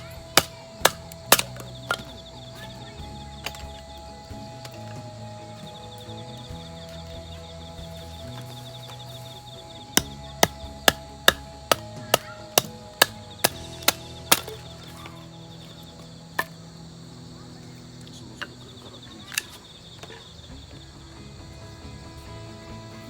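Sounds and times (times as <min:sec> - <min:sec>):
crickets chirping: 0:00.0 - 0:23.0
sharp hammer strikes: 0:00.3 - 0:02.2, 0:09.9 - 0:15.1.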